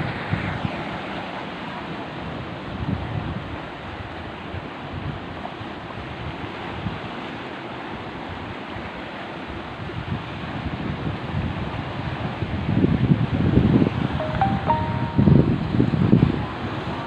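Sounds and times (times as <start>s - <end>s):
wind buffeting microphone: 2.1s - 7.1s, 9.6s - 14.2s
sea surf breaking: 14.2s - 17.0s.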